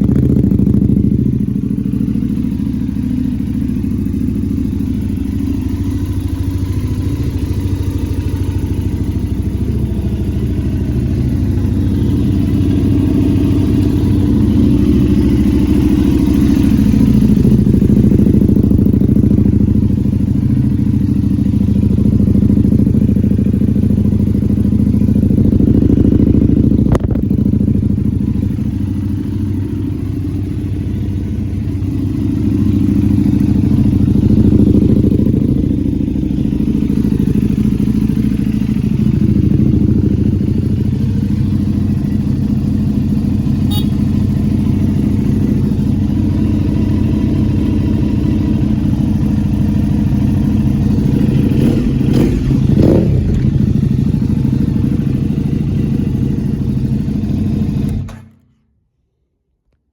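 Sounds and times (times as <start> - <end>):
motorcycle engine idling: 0.0 - 58.6
sharp click: 57.9 - 58.6.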